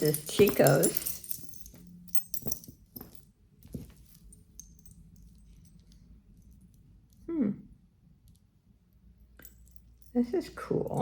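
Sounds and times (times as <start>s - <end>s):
beads and metal chain clinking: 0.0s - 6.7s, 9.3s - 11.0s.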